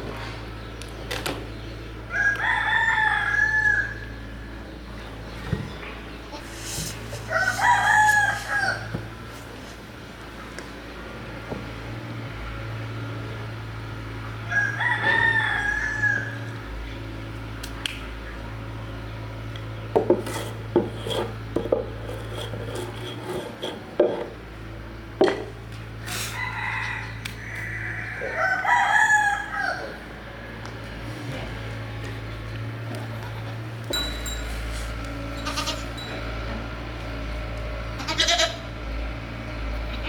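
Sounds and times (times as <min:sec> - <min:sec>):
rooster crowing: 0:02.1 - 0:04.2, 0:07.2 - 0:09.1, 0:14.5 - 0:16.7, 0:26.1 - 0:30.1.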